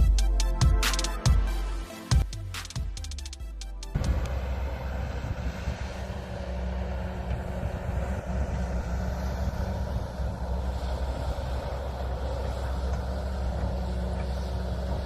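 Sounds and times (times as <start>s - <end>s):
electronic music: 0.0s - 4.4s
excavator diesel engine running: 0.0s - 15.0s.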